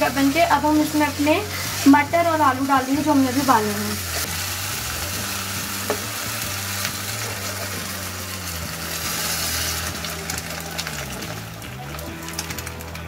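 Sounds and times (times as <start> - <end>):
masala sizzling in oil: 0.0 - 13.0.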